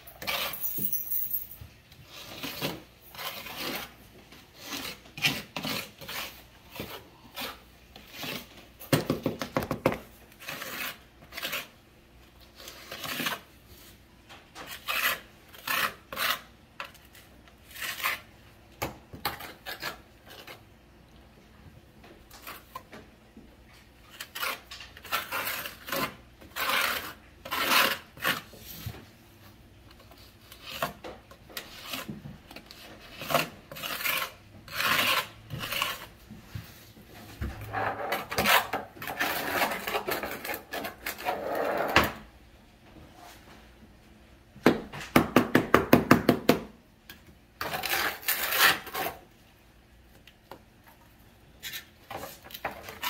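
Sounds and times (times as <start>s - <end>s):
trowel scraping mortar: 0.1s - 0.6s, 1.9s - 9.2s, 10.3s - 11.8s, 12.4s - 14.0s, 14.6s - 18.4s, 19.2s - 20.7s, 24.0s - 29.0s, 30.0s - 36.2s, 37.7s - 42.0s, 47.6s - 49.3s.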